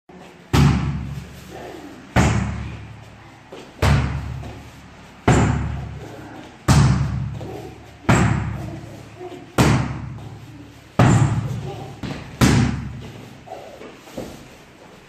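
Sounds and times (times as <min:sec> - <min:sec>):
heavy echoing slams: 0:00.5 - 0:01.4, 0:02.1 - 0:03.0, 0:03.7 - 0:08.8, 0:09.5 - 0:13.5.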